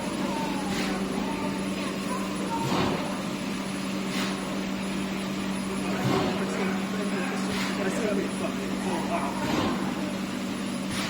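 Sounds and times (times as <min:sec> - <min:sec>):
faint voices: 0:00.0 - 0:10.9
factory machinery humming: 0:00.0 - 0:11.0.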